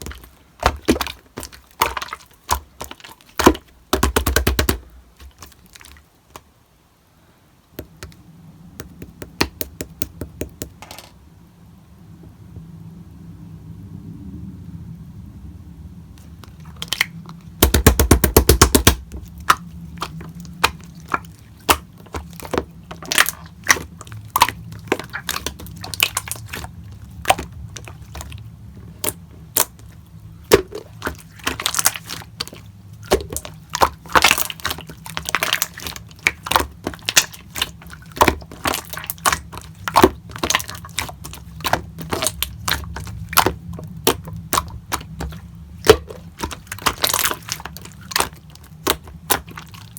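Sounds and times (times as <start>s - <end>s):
slime kneaded by hand: 0.0s - 6.5s, 7.8s - 10.8s, 16.2s - 49.9s.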